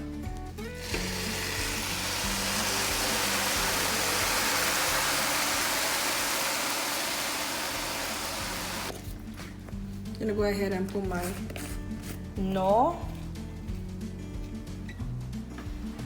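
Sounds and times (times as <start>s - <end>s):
rice sizzling in a pan: 0.8s - 8.9s.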